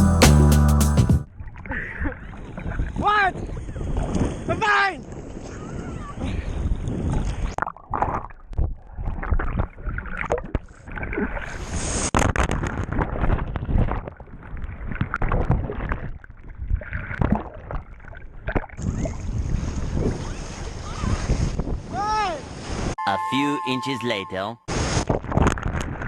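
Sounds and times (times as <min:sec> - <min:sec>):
water splashing and sloshing: 0:01.3 - 0:05.6, 0:07.0 - 0:11.8, 0:12.8 - 0:21.3.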